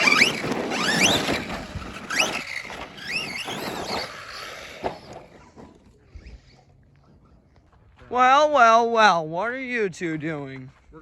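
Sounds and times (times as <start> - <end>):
electric rc car motors whining: 0.0 - 7.6.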